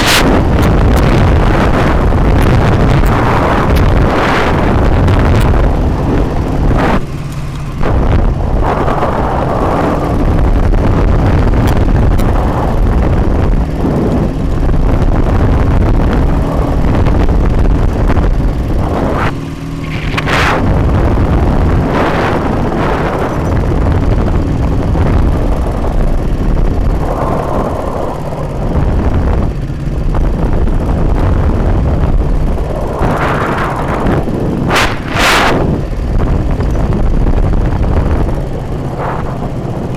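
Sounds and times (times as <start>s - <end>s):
motorcycle engine under load: 0.0s - 39.9s
wind rushing over microphone: 0.0s - 39.9s
sharp cracks: 19.1s - 20.7s.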